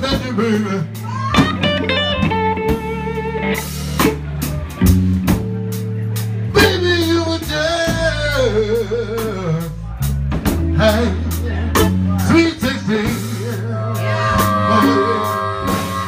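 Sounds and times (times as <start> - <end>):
bending lead guitar line: 0.0 - 16.0
blues band playing: 0.0 - 16.0
person singing: 10.7 - 16.0.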